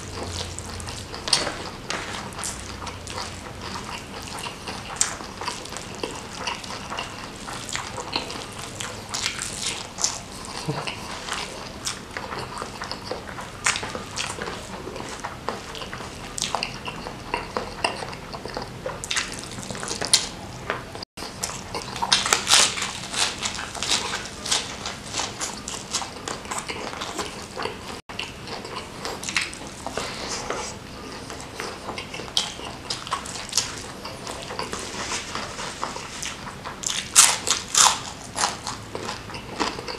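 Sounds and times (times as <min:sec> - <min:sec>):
chewing crunchy food: 0:00.0 - 0:39.9.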